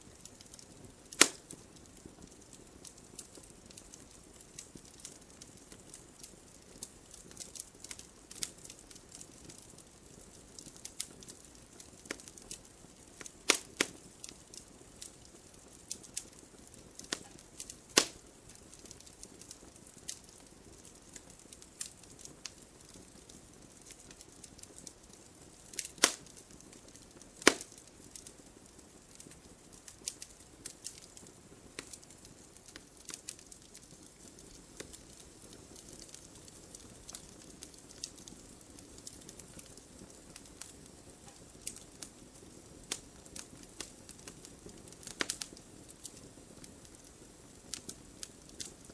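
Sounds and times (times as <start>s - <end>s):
faint hiss: 0.0s - 48.9s
wood logs crackling: 16.9s - 18.2s, 25.6s - 28.4s.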